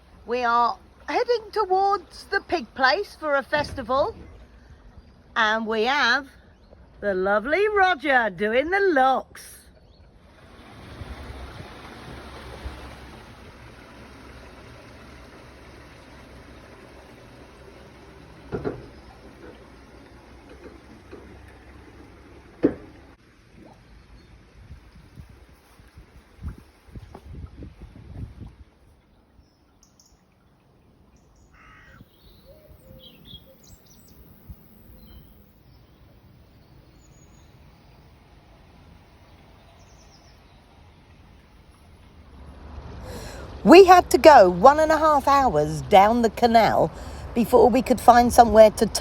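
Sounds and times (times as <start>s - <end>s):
low steady rumble: 0.0s - 29.7s, 32.1s - 49.0s
water rushing through lock paddles: 0.0s - 49.0s
bird calls: 31.2s - 38.2s.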